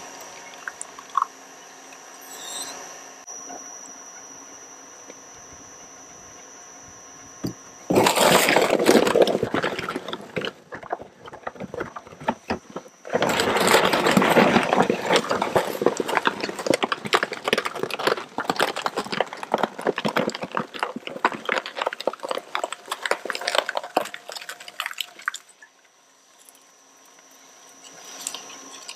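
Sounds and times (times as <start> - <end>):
shredder crunching plastic: 7.4 - 25.5.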